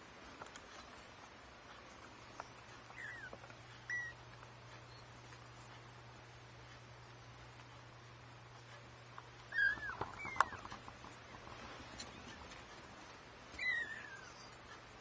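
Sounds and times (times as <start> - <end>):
kittens mewing: 2.8 - 4.3, 9.4 - 12.6, 13.5 - 14.7.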